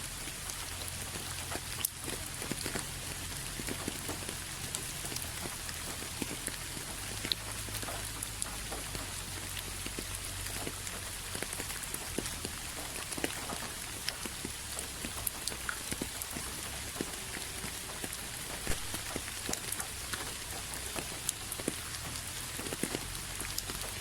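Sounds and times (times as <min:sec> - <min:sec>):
steady rain with ticking drops: 0:00.0 - 0:24.0.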